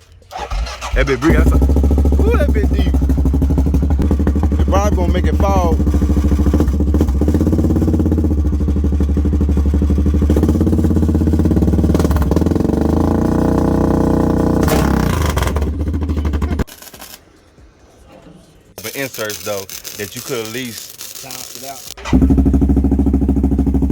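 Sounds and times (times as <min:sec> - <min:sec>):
atv engine with deep loud note: 0:00.3 - 0:16.7, 0:22.0 - 0:23.9.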